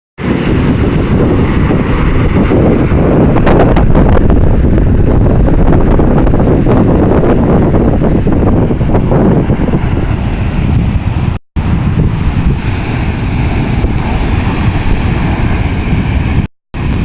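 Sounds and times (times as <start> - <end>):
sea surf: 0.2 - 17.0
strong wind buffeting microphone: 0.2 - 17.0.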